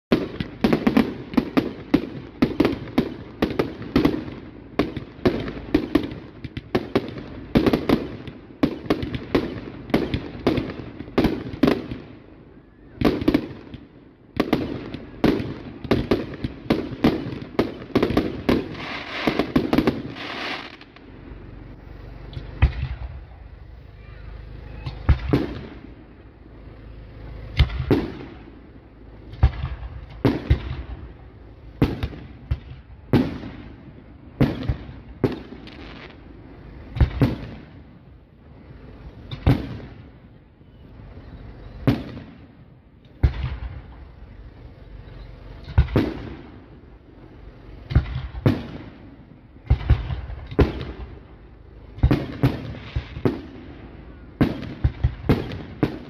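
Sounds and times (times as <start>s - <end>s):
fireworks bangs: 0.1s - 56.0s.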